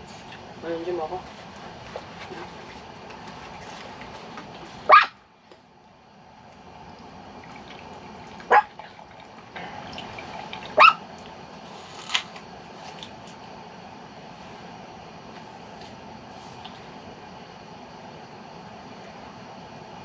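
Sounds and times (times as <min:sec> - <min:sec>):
dog barking: 0:04.9 - 0:05.2, 0:08.5 - 0:08.7, 0:10.8 - 0:11.0.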